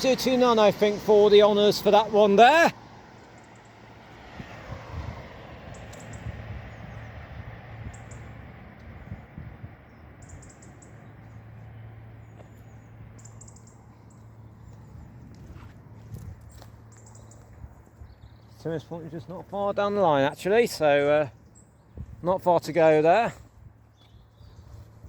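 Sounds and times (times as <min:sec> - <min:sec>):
distant traffic hum: 0:00.0 - 0:25.0
high bird chirps: 0:05.7 - 0:07.2, 0:07.8 - 0:08.4, 0:09.9 - 0:11.4, 0:12.2 - 0:15.0, 0:16.4 - 0:18.7.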